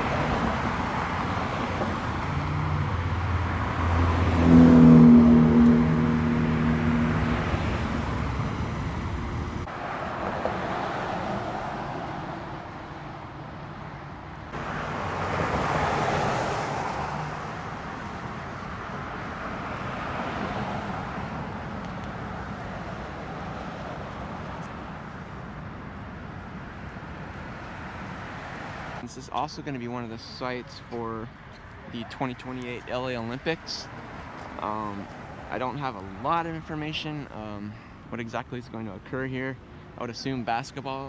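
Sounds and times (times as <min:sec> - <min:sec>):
low engine hum: 0:00.0 - 0:28.0
cars passing: 0:00.0 - 0:41.0.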